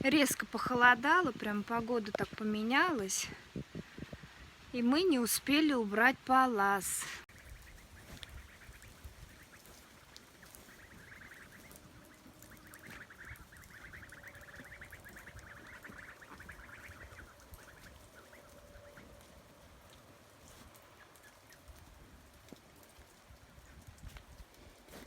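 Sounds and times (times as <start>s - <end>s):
ducks quacking faintly: 7.0s - 22.0s.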